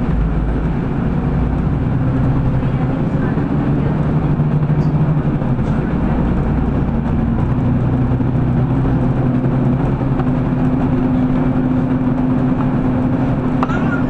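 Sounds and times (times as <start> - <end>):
bus engine and road rumble: 0.0 - 14.0
drivetrain tone rising in pitch: 13.5 - 14.0.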